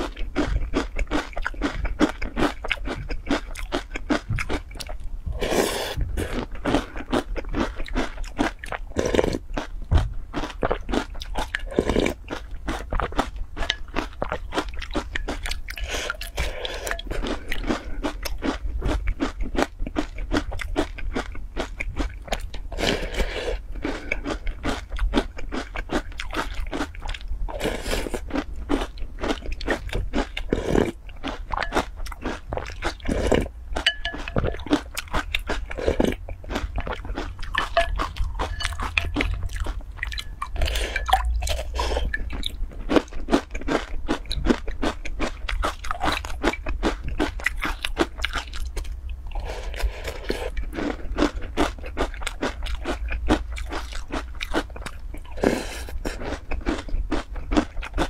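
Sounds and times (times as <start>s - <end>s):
crunching and chewing: 0.0s - 58.0s
slurps of milk from spoon: 5.4s - 6.5s, 40.5s - 42.2s.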